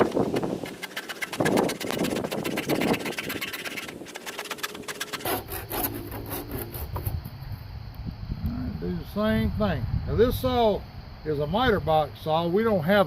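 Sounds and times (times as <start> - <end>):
handsaw cutting plastic pipe: 0.0 - 7.3.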